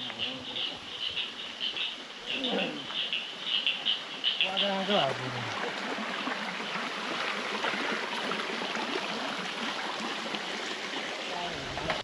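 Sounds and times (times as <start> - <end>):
stream water running: 0.0 - 12.0.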